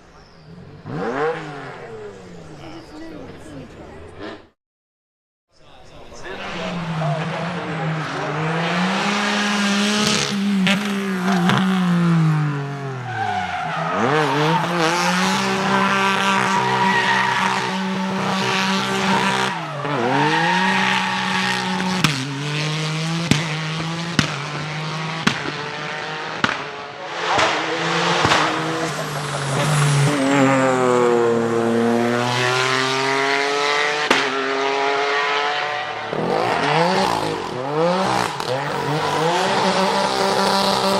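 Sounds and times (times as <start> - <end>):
car engine revving: 0.4 - 4.6, 6.0 - 40.9
tyre squeal: 37.0 - 40.9.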